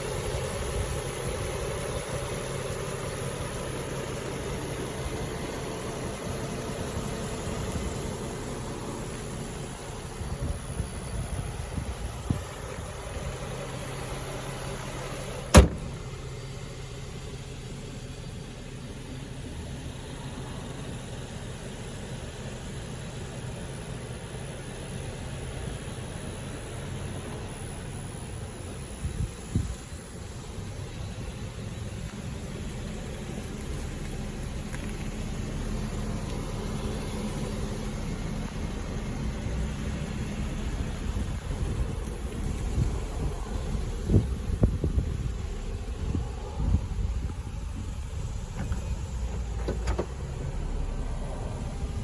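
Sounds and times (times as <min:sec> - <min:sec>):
car engine idling: 0:00.0 - 0:52.0
sharp loud knock: 0:15.6 - 0:16.1.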